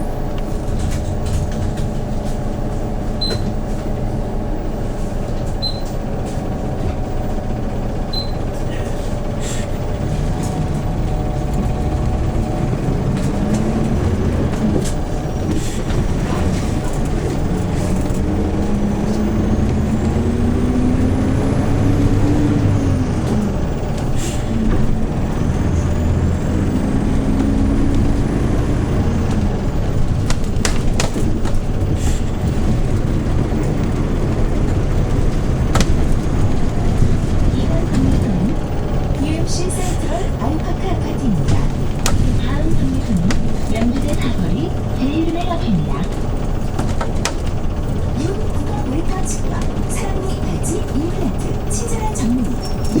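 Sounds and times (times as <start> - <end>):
bus engine accelerating: 0.0 - 53.0
sharp rattles and clicks: 22.1 - 53.0.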